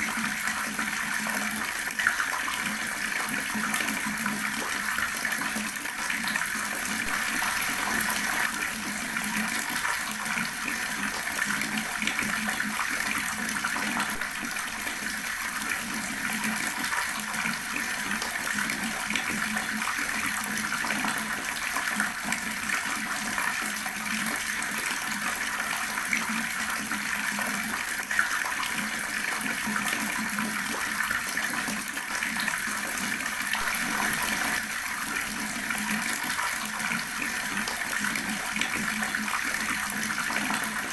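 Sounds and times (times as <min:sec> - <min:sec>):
water running from tap and splashing: 0:00.0 - 0:40.9.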